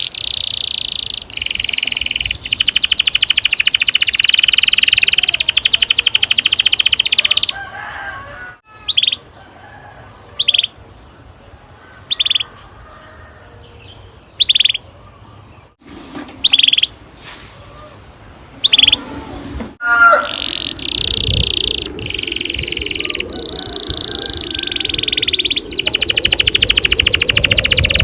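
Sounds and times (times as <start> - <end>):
canary chirps: 0.0 - 7.6, 8.8 - 9.3, 10.4 - 10.8, 12.0 - 12.6, 13.9 - 15.8, 16.4 - 17.0, 18.6 - 19.1, 20.2 - 28.0
canary trilling: 0.0 - 7.6, 14.4 - 14.9, 18.6 - 19.1, 19.8 - 28.0.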